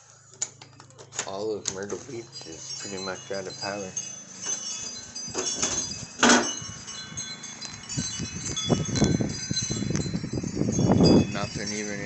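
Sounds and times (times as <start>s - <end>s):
wind chimes ringing: 0.6s - 12.0s
gusting wind: 4.0s - 12.0s
wind buffeting microphone: 4.9s - 12.0s.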